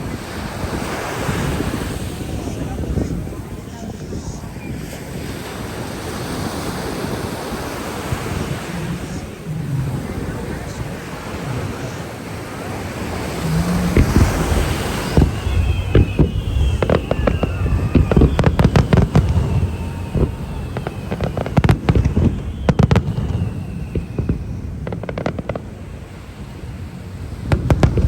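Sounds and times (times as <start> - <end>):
fireworks bangs and crackles: 0.0 - 28.0
surf: 0.0 - 28.0
wind: 0.0 - 28.0
faint high whistles: 6.8 - 26.6.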